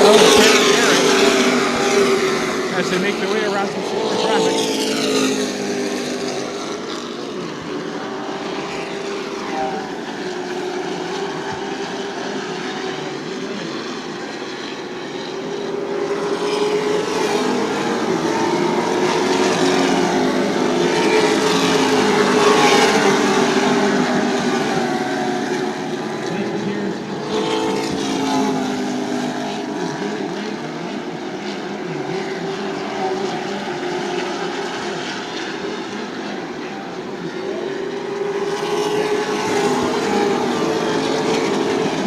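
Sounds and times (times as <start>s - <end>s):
race truck engines droning: 0.0s - 42.0s.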